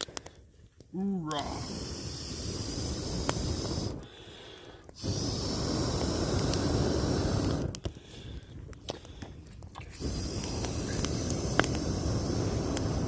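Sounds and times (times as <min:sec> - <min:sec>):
campfire crackles: 0:00.0 - 0:13.0
meat hissing on hot rock: 0:01.4 - 0:04.2, 0:05.0 - 0:07.8, 0:09.9 - 0:13.0.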